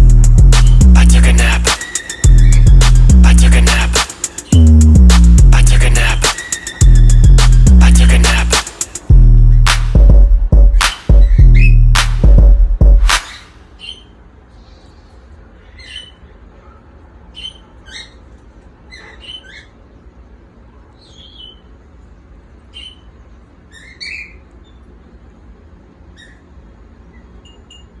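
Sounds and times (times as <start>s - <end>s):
low steady hum: 0.0s - 13.1s
cockatiels chirping: 0.6s - 2.8s, 5.8s - 7.3s, 10.9s - 11.8s, 13.2s - 14.2s, 15.6s - 16.4s, 17.3s - 19.9s, 21.0s - 21.7s, 22.7s - 23.1s, 23.7s - 24.9s, 26.1s - 27.4s.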